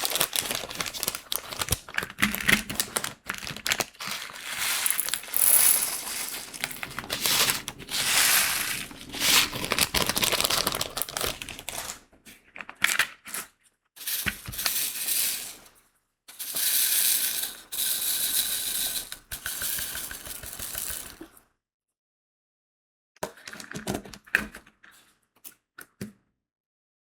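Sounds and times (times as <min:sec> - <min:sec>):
beads rattling in a tray: 0:00.0 - 0:01.7, 0:03.5 - 0:12.0, 0:14.0 - 0:15.7, 0:16.3 - 0:21.2
plastic bag crinkling: 0:00.0 - 0:12.0.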